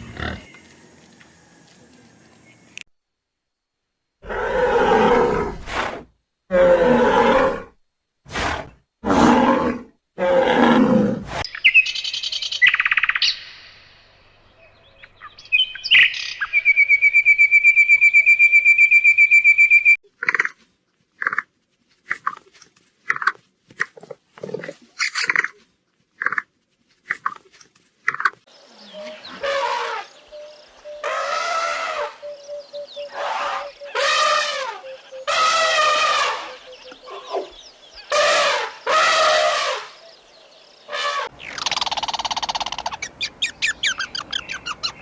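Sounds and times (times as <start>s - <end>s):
animal roaring: 4.2s - 11.4s
high bird chirps: 41.3s - 45.0s.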